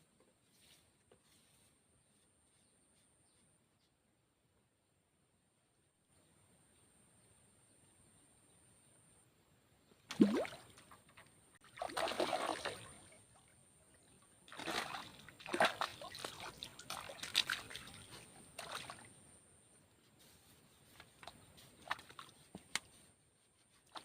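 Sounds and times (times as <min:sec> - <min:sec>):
water splashing and sloshing: 0:10.1 - 0:19.3, 0:20.9 - 0:23.1, 0:23.7 - 0:24.0.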